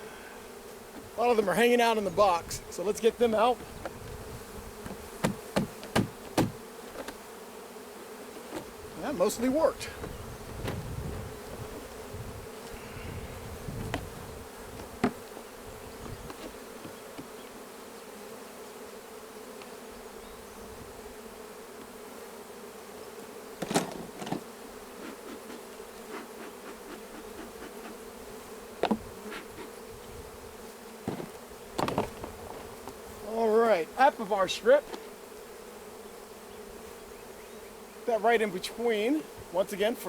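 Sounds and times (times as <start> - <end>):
bees buzzing: 0.0 - 40.0
sharp knocks: 4.8 - 6.6.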